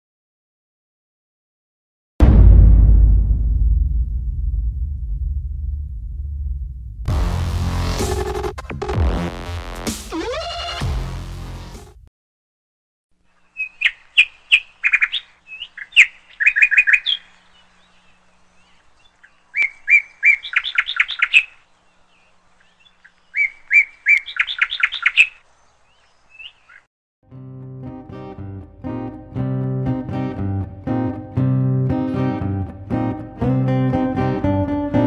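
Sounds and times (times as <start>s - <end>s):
songbird chirping: 13.2s - 26.9s.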